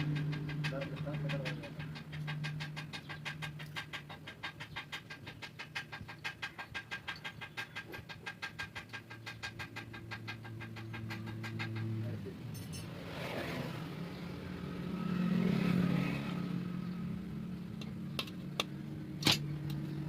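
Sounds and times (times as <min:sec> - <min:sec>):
rapid mechanical ticking: 0:00.0 - 0:12.1.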